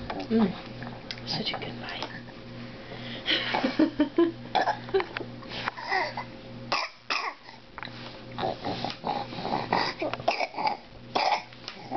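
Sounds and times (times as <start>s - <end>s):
baby coughing: 4.5s - 4.8s, 5.8s - 7.6s, 9.7s - 11.9s
baby throaty vocal noises: 8.4s - 11.9s.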